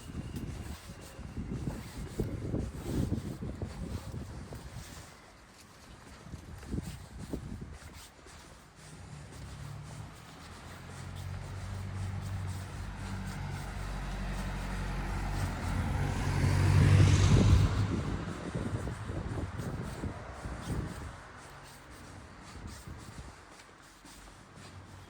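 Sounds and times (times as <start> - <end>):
vehicle driving past: 9.0 - 20.4.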